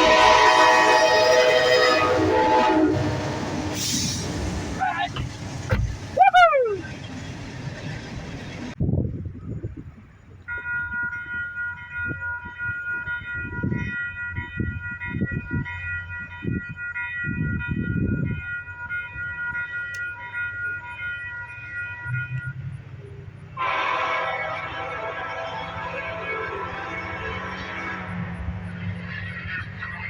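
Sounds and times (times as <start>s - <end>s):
locomotive air horn: 0.0s - 4.9s, 23.5s - 30.0s
train rumble: 0.0s - 30.0s.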